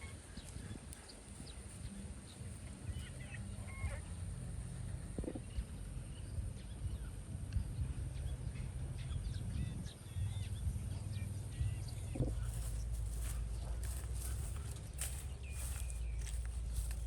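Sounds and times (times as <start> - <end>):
low steady rumble: 0.0 - 17.0
bird chirps: 5.3 - 17.0.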